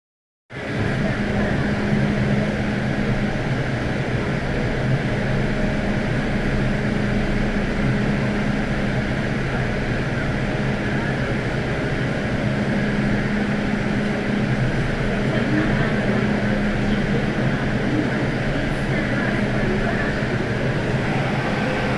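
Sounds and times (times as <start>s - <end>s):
train electrical hum: 17.2s - 21.9s
train rumble: 17.8s - 21.9s.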